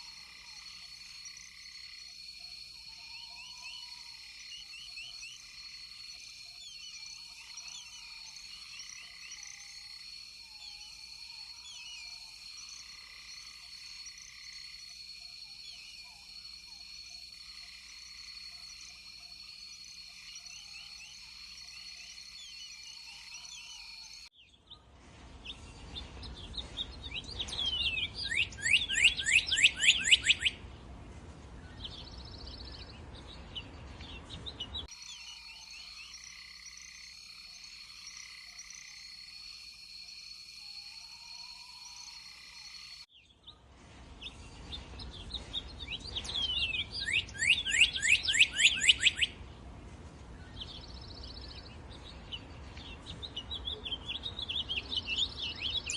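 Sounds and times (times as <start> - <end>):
frogs and insects calling: 0.0 - 24.3, 28.2 - 30.6, 34.9 - 43.1, 46.6 - 49.4
bird whistling downward notes: 27.6 - 30.6, 46.3 - 49.4.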